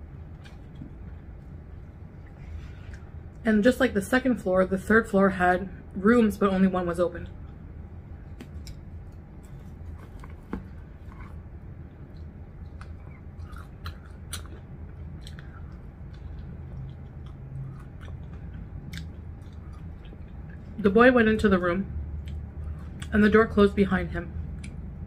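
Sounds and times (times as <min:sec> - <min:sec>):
low steady hum: 0:00.0 - 0:25.0
person chewing crispy food: 0:08.3 - 0:20.8.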